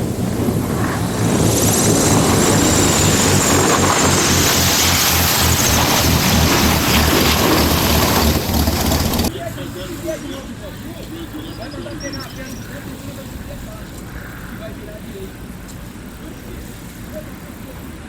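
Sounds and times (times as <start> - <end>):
wind noise on microphone: 0.0 - 9.3
propeller aircraft engine: 0.0 - 18.0.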